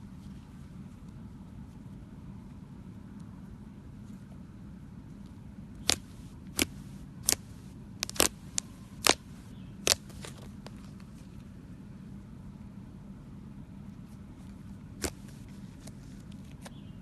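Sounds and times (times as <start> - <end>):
faint steady hum: 0.0 - 17.0
slime being squished: 5.8 - 10.7, 15.0 - 16.0.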